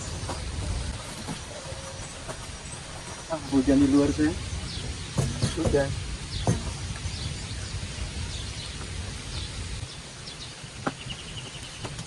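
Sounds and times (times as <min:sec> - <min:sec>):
rain hissing: 0:00.0 - 0:12.0
bird chirps: 0:06.3 - 0:12.0.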